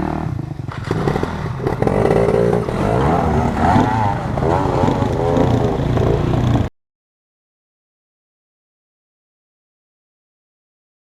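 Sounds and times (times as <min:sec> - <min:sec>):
dirt bike engine revving: 0:00.0 - 0:06.7.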